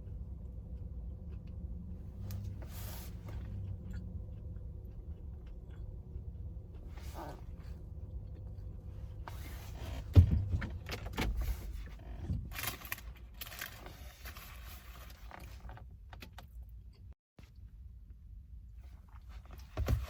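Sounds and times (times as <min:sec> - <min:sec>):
chewing with clicks: 0:00.0 - 0:02.5, 0:03.5 - 0:07.0.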